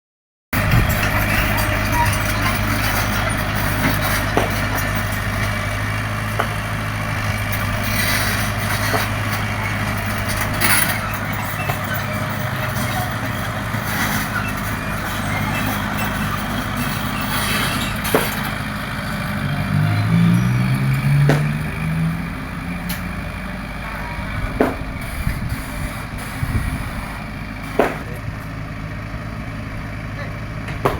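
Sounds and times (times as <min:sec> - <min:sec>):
diesel engine running: 0:00.5 - 0:30.9.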